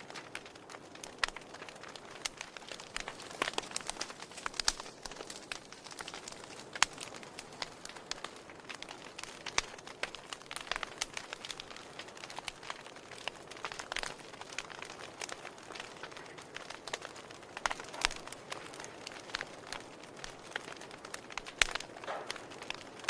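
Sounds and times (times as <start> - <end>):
campfire crackling and popping: 0.0 - 23.0
soft fire hiss: 0.0 - 23.0.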